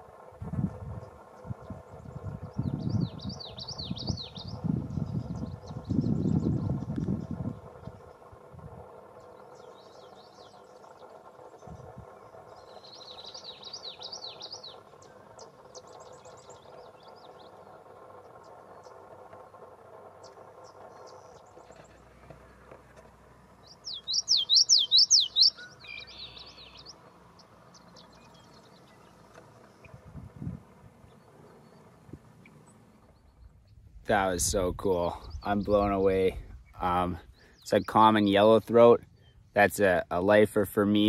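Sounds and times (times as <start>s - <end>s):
steady low hum: 0.0s - 41.0s
bird singing high phrases: 1.0s - 8.3s, 9.1s - 19.1s, 23.4s - 30.1s, 31.0s - 40.4s
faint bird chips: 23.7s - 27.0s.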